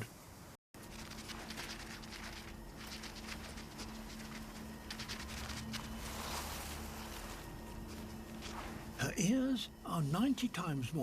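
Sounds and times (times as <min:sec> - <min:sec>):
small animal pattering on ground: 0:00.8 - 0:09.0
low steady hum: 0:00.8 - 0:11.0.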